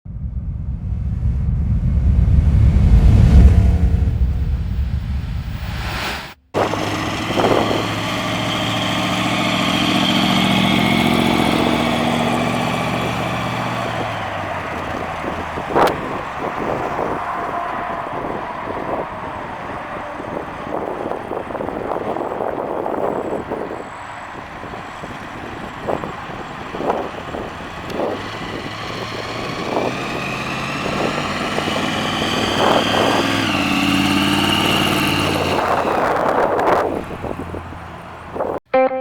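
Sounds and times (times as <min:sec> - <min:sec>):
high whine: 0:00.1 - 0:14.1
car engine running: 0:00.1 - 0:38.6.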